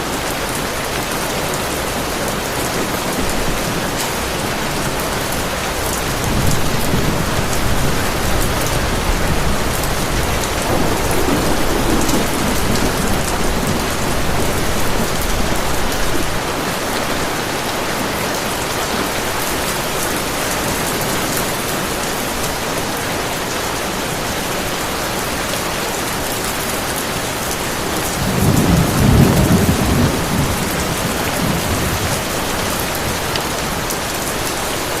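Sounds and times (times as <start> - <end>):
heavy rain falling: 0.0 - 35.0
rolling thunder: 3.2 - 16.5, 27.7 - 33.9.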